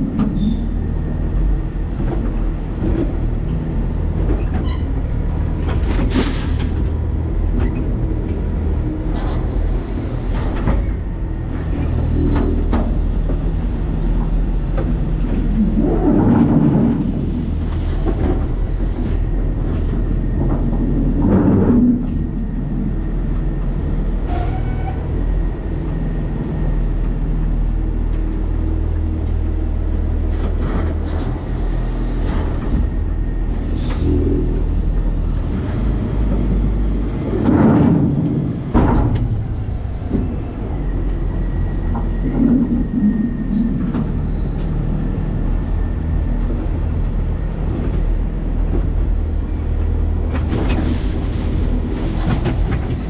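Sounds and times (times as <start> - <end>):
truck body clanking and rattling: 0.0 - 22.4, 30.3 - 49.6, 50.2 - 53.0
garbage truck rumbling: 0.0 - 53.0.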